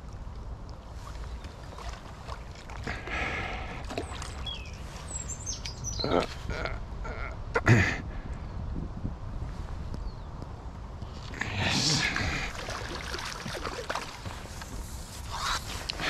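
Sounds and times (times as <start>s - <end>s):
small birds chirping: 1.0s - 6.8s, 9.8s - 12.0s.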